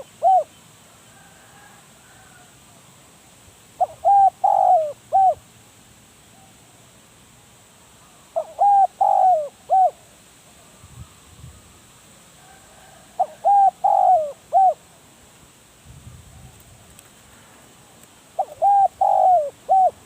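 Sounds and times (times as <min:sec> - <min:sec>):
dove cooing: 0:00.0 - 0:00.6, 0:03.8 - 0:05.4, 0:08.4 - 0:10.1, 0:12.8 - 0:14.9, 0:18.4 - 0:20.0.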